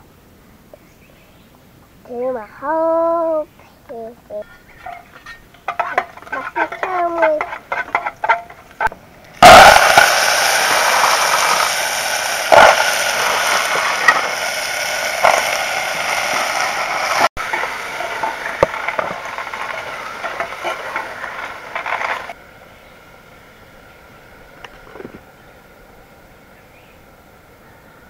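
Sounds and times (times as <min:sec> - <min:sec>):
oil popping: 0:04.7 - 0:22.4
food sizzling in hot oil: 0:04.8 - 0:22.4.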